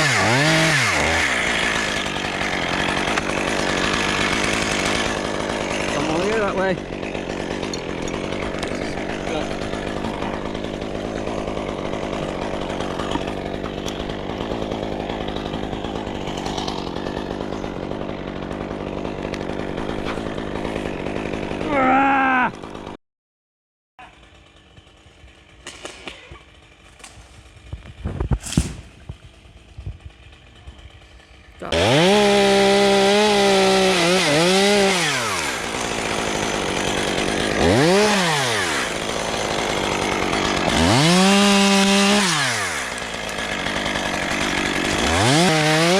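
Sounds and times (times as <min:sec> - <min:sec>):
chainsaw cutting wood: 0:00.0 - 0:23.0, 0:24.0 - 0:45.9.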